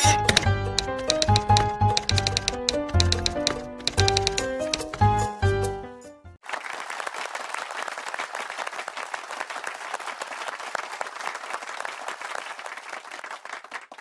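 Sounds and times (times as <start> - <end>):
crowd applause: 6.4 - 14.0.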